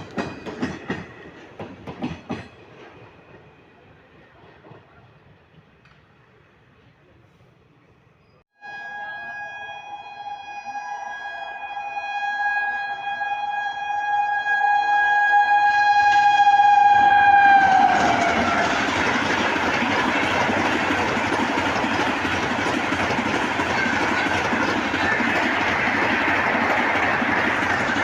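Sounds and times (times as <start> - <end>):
train clatter and rumble: 0.0 - 7.2, 16.0 - 28.0
train horn: 8.6 - 28.0.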